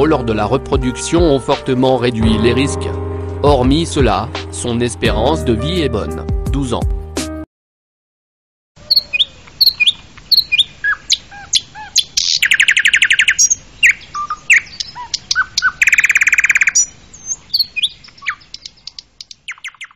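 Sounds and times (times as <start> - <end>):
bird trills: 8.8 - 19.9
birds chirping and whistling: 8.8 - 19.9.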